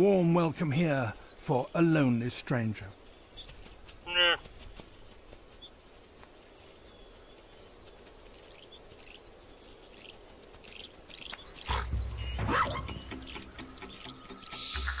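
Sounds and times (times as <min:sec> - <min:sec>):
bird chirping: 0:00.0 - 0:15.0
animal call: 0:04.0 - 0:04.5, 0:11.6 - 0:15.0.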